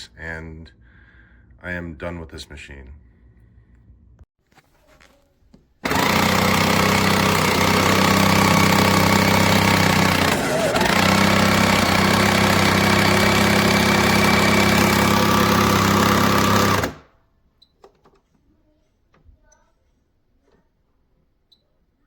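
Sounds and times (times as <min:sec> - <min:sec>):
faint clicks and knocks: 0:17.6 - 0:21.6.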